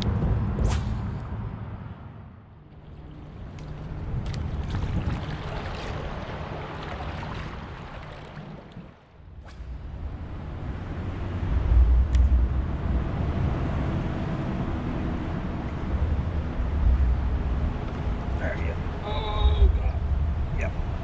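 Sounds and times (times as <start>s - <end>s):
wind buffeting microphone: 2.6s - 21.0s
river rushing: 2.7s - 9.0s.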